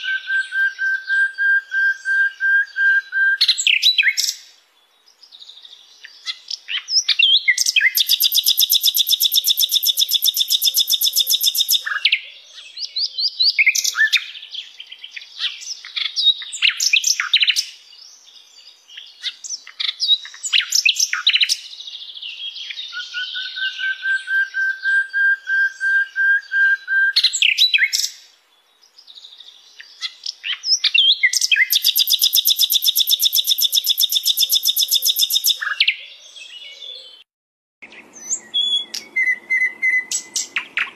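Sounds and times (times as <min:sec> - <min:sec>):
bird whistle: 0:00.0 - 0:04.3, 0:07.0 - 0:12.2, 0:22.9 - 0:28.1, 0:30.8 - 0:36.0, 0:38.2 - 0:40.9
bird chirps: 0:00.0 - 0:40.9
bird trills: 0:06.2 - 0:12.2, 0:29.9 - 0:36.1.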